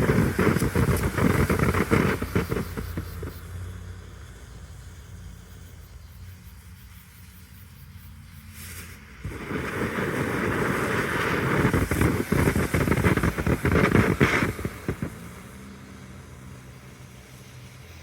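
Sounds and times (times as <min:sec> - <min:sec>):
firework pops and crackles: 0:00.0 - 0:03.6, 0:08.5 - 0:15.6
firework fountain hissing: 0:00.0 - 0:18.0.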